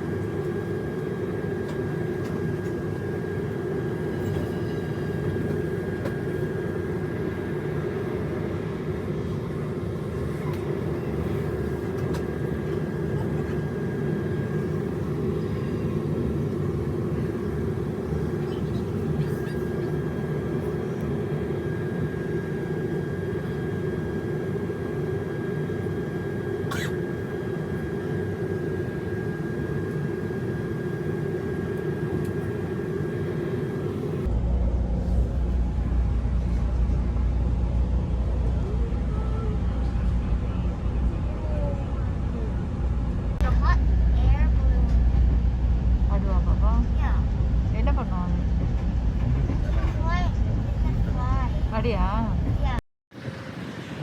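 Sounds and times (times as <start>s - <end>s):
train rumble inside coach: 4.1s - 6.4s, 10.0s - 13.7s, 34.2s - 52.8s.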